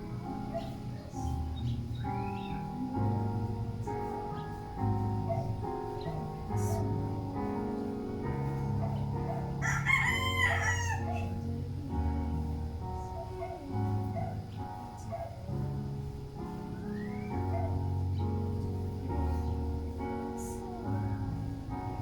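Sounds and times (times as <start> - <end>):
instrumental music with held notes: 0.0 - 22.0
rooster crowing: 9.3 - 11.4.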